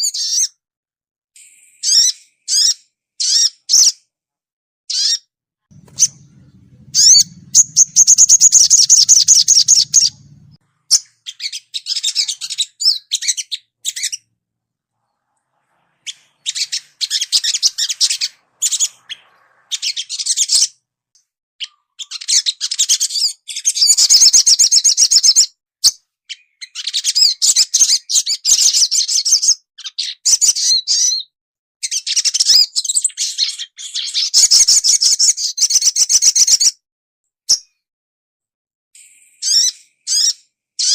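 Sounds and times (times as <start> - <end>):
bird twittering and chirping: 5.0 - 14.2, 16.0 - 20.7.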